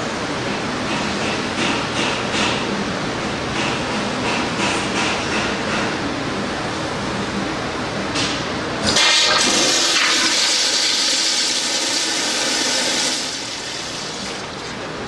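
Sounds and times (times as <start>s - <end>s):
toilet flushing: 8.8s - 15.0s.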